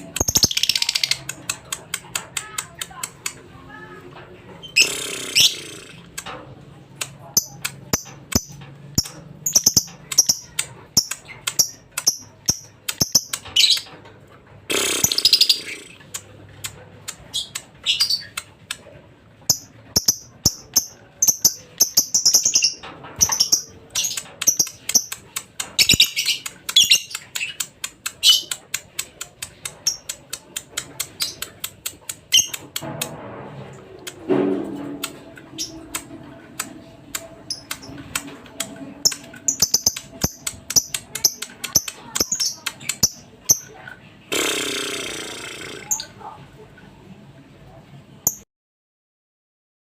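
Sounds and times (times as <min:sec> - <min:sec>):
lovebird chattering: 0:00.1 - 0:03.4, 0:04.6 - 0:06.1, 0:07.3 - 0:13.9, 0:14.7 - 0:16.2, 0:19.5 - 0:25.2, 0:25.8 - 0:32.6, 0:39.0 - 0:43.7.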